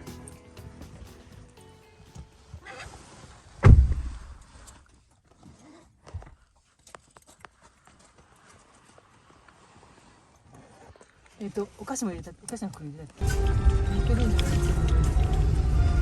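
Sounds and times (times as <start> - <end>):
heavy thump: 3.6 - 4.4.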